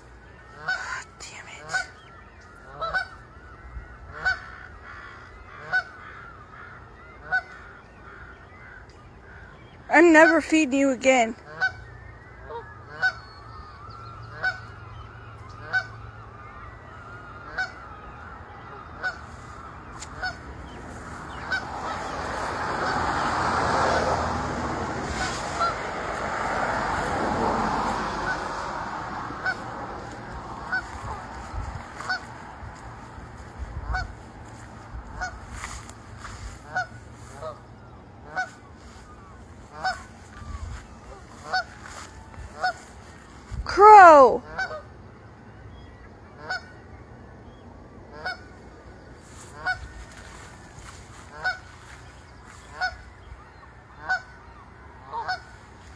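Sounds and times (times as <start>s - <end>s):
goose honking: 0.4s - 43.2s, 43.8s - 45.0s, 46.3s - 46.8s, 48.1s - 55.9s
broad rushing noise: 18.2s - 44.4s.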